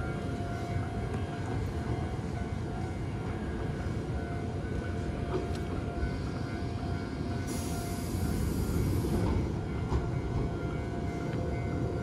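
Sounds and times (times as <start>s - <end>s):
electric train rumble: 0.0s - 12.0s.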